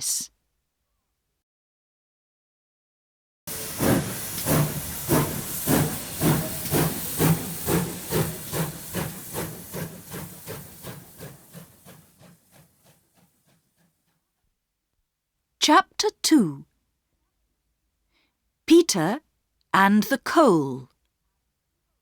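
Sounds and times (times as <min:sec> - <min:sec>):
steam locomotive chuffing: 0:03.5 - 0:14.2.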